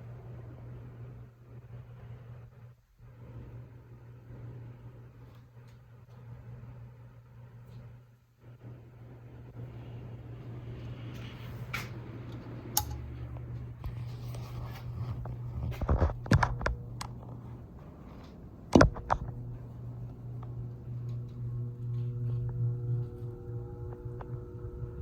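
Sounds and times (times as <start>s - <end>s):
ceiling fan motor hum: 0.0s - 25.0s
sharp clicks and knocks: 15.2s - 17.4s, 18.7s - 19.6s.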